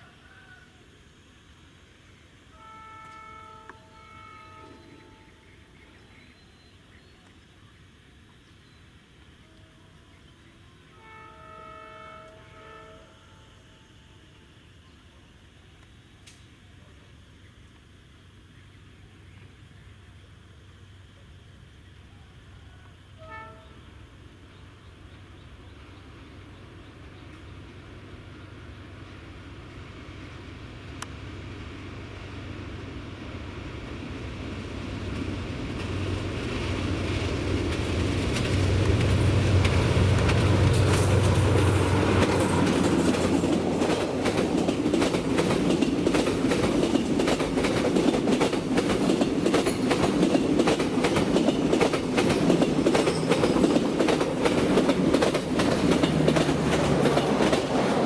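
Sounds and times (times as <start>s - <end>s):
locomotive hum: 0.0s - 58.0s
train wheels clicking over rail joints: 35.0s - 58.0s.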